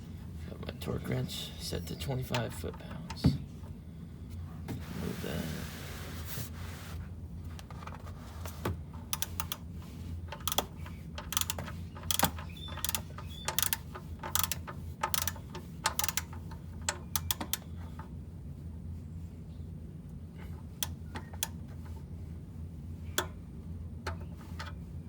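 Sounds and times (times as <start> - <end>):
ratcheting wrench clicking: 9.1 - 9.6, 10.3 - 17.7.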